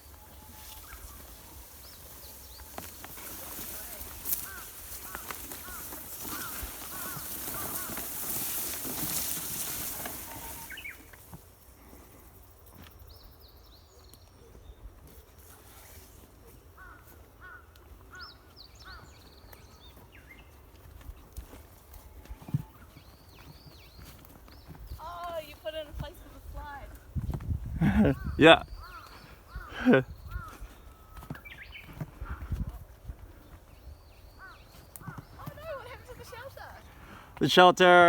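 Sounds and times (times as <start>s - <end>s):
birds chirping: 0.0s - 11.2s, 16.6s - 38.0s
rustling hiss: 0.6s - 12.4s.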